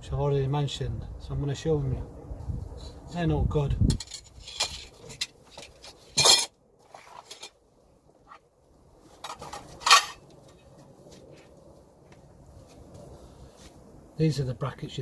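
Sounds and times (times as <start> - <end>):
metal brackets clinking: 3.9 - 6.5, 9.2 - 10.3.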